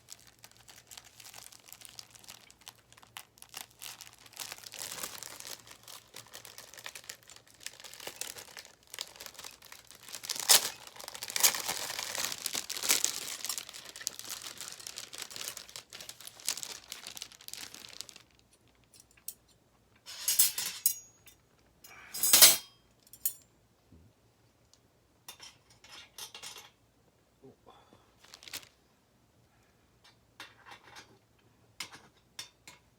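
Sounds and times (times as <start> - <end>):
packaging crinkling and rustling: 0.0 - 18.9, 28.2 - 28.8.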